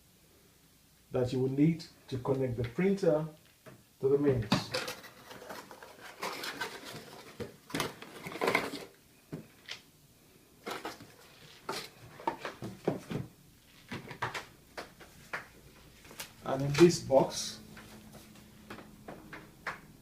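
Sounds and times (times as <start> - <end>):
cardboard boxes rustling and knocking: 4.5 - 9.5, 10.6 - 14.4.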